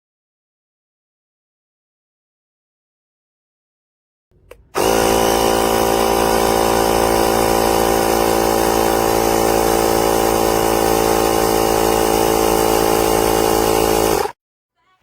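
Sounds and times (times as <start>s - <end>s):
air compressor motor buzzing: 4.4s - 14.4s.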